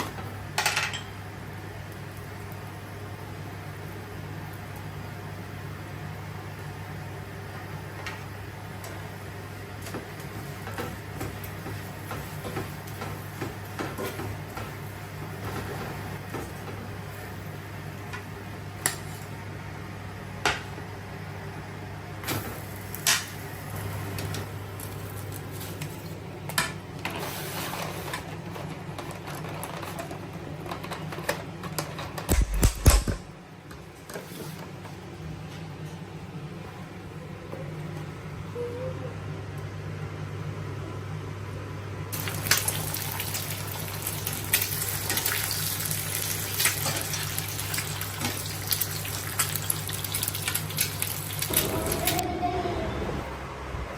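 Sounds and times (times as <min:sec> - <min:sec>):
knocks and clicks of objects: 0:32.3 - 0:33.4.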